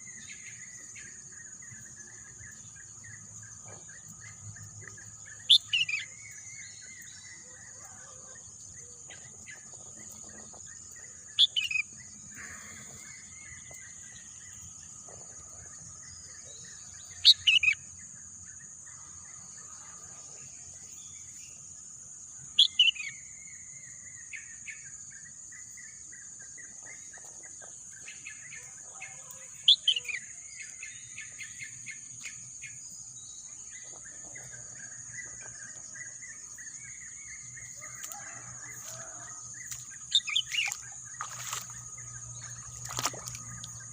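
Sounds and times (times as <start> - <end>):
soft bird chirps: 22.5 - 43.9.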